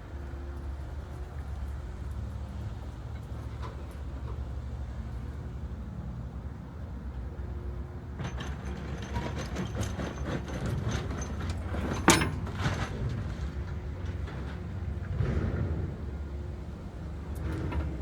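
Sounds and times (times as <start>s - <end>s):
knocks and clatter: 8.2s - 16.2s.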